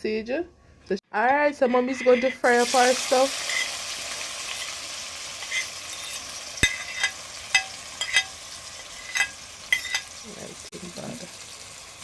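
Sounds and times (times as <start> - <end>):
utensil clinking against metal pot: 1.6 - 2.6, 5.4 - 10.1
food sizzling in hot oil: 1.7 - 12.0.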